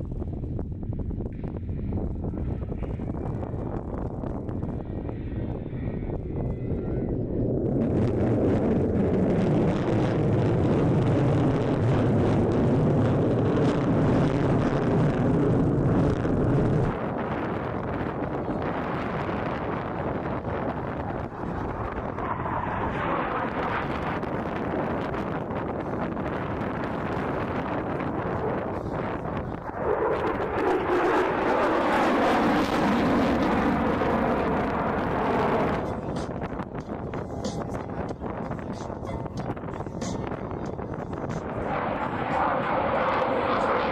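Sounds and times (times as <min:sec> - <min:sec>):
fighter jet roaring past: 0:05.3 - 0:36.6, 0:41.1 - 0:43.9.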